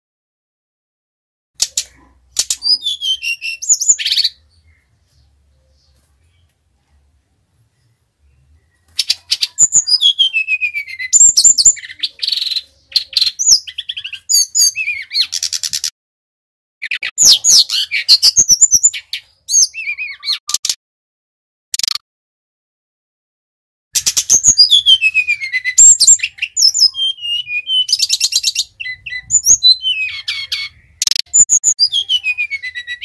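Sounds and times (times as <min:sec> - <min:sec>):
bird singing trills and whistles: 0:01.6 - 0:06.4, 0:08.2 - 0:15.9, 0:16.8 - 0:20.6, 0:24.0 - 0:33.0.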